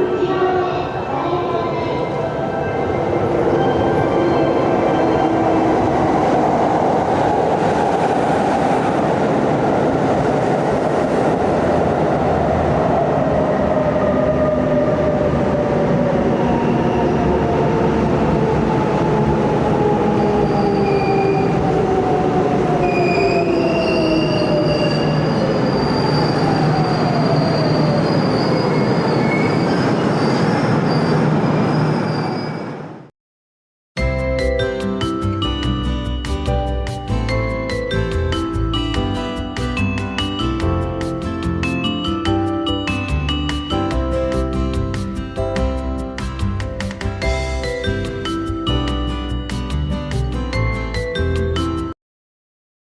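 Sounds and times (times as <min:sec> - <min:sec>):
wheel and brake squeals: 0:23.0 - 0:32.8.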